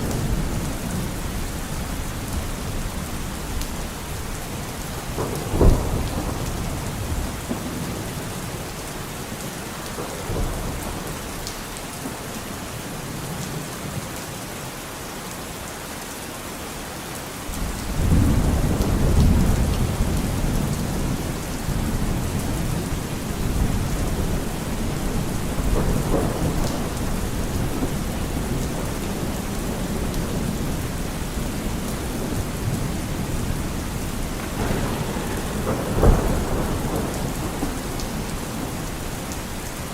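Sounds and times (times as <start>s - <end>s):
rolling rumble of thunder: 0.0s - 13.6s, 17.5s - 39.9s
steady rain: 0.0s - 39.9s
sharp thunderclap: 4.9s - 8.7s, 17.6s - 30.9s, 31.6s - 39.9s.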